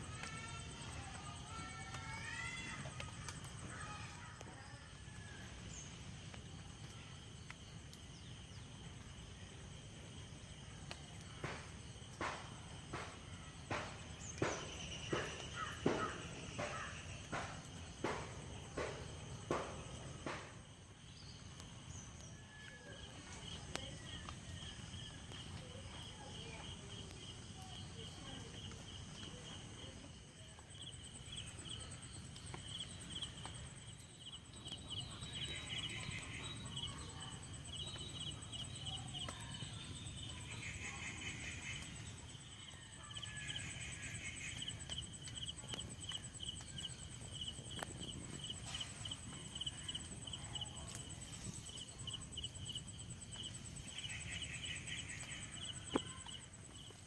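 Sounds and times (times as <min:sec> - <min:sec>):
insects trilling: 0:00.0 - 0:57.0
higher-pitched insect trill: 0:30.6 - 0:57.0.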